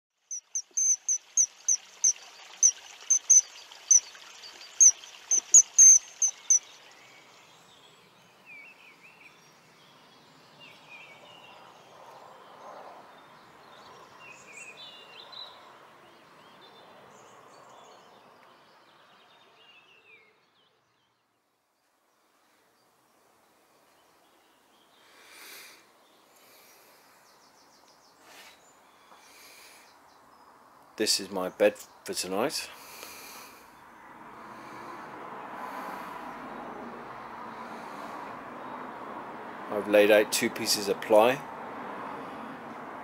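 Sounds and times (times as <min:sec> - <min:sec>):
sharp high bird chirps: 0:00.3 - 0:06.9
whistled bird calls: 0:00.3 - 0:07.2.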